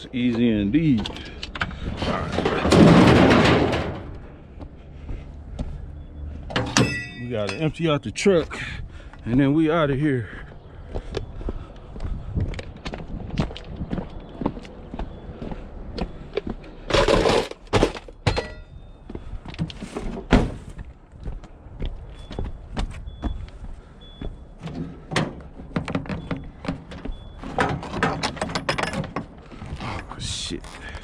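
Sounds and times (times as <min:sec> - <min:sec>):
scrap metal clanking and crashing: 0:01.9 - 0:04.3, 0:06.5 - 0:07.7, 0:16.9 - 0:18.7, 0:27.4 - 0:29.3.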